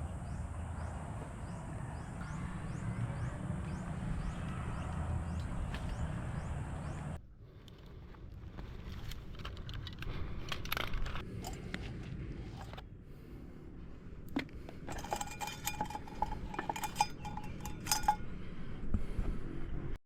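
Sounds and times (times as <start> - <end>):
metallic clinking and jingling: 14.9 - 18.3
rapid bell-like rings: 15.1 - 18.2.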